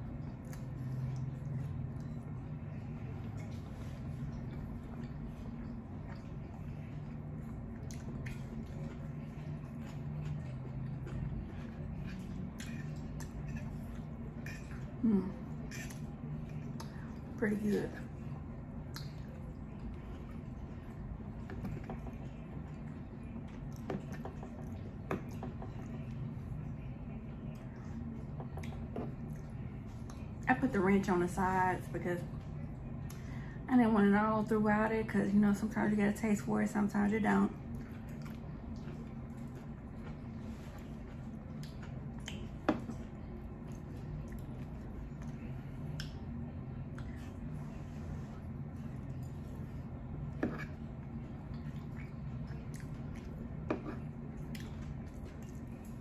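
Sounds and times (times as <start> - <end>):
low hum: 0.0 - 56.0
person chewing food: 0.1 - 17.3, 37.6 - 56.0.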